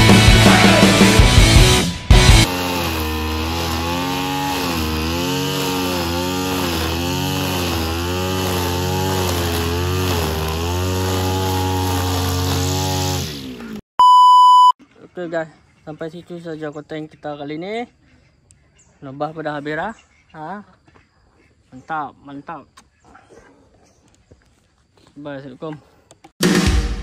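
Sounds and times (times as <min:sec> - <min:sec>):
brush cutter engine running: 0:02.2 - 0:13.8
loud steady beep: 0:14.0 - 0:14.8.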